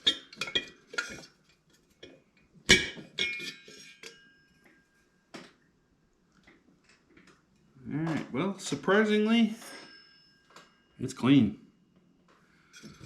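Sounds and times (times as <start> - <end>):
sharp metallic clink ringing: 2.8 - 5.0, 9.5 - 11.8.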